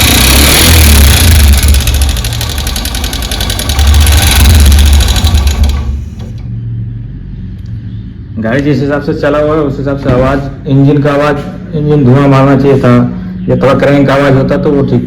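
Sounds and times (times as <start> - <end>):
engine ticking clatter: 0.0 - 6.5
engine running: 0.0 - 8.3.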